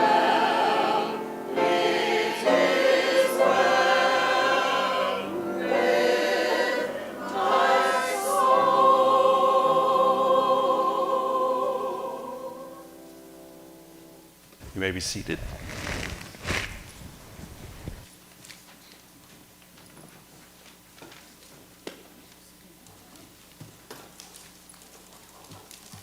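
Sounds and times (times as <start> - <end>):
choir singing: 0.0 - 13.7.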